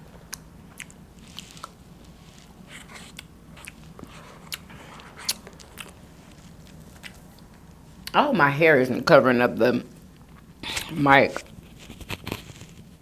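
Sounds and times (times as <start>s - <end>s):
person chewing food: 0.3s - 7.8s.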